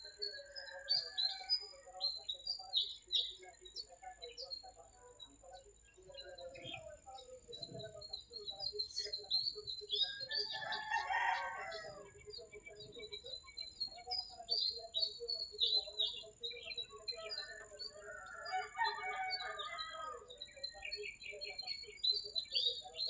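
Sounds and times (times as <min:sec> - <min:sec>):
small birds chirping: 0:00.0 - 0:23.0
rooster crowing: 0:10.1 - 0:12.2, 0:17.9 - 0:20.3.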